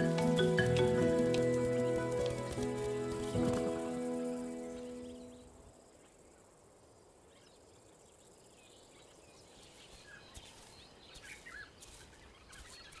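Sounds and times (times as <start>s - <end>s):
faint bush ambience: 0.0s - 13.0s
faint bird chirps: 4.1s - 13.0s.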